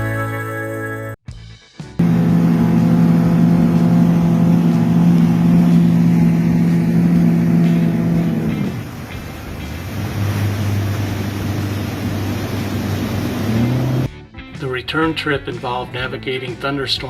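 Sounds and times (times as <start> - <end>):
engine running hard: 2.0 - 14.1
rushing noise: 2.0 - 14.1.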